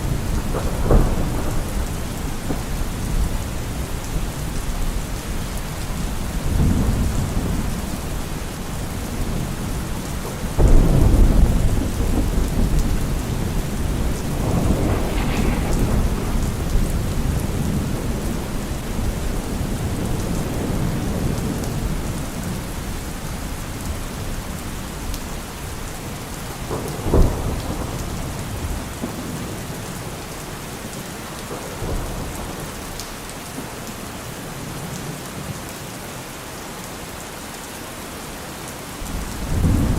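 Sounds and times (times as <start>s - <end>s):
rolling thunder: 0.0s - 5.1s, 8.8s - 22.9s, 25.8s - 33.0s, 39.1s - 39.9s
steady rain: 0.0s - 39.9s
sharp thunder crack: 10.6s - 20.1s.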